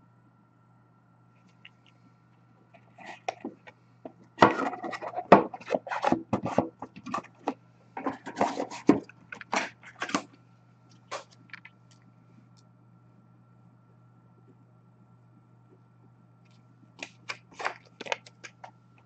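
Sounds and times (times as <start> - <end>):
faint electrical hum: 0.0 - 19.0
card packaging rustling: 17.0 - 18.7.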